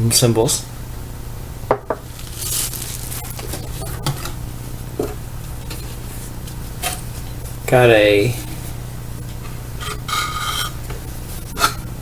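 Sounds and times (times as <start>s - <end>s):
steady low hum: 0.0s - 12.0s
packaging rustling: 2.1s - 4.0s.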